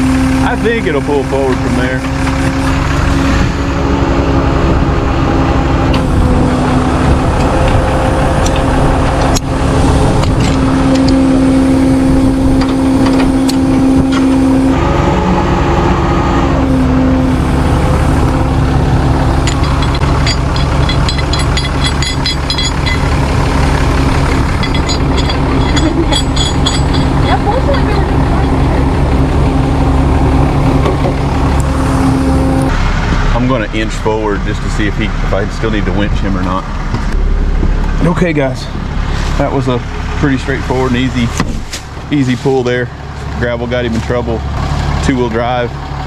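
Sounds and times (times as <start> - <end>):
vehicle engines droning: 0.0 - 46.0.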